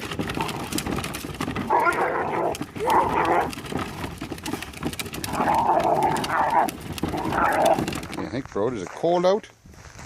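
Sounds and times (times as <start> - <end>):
dog woofing: 0.2 - 8.2.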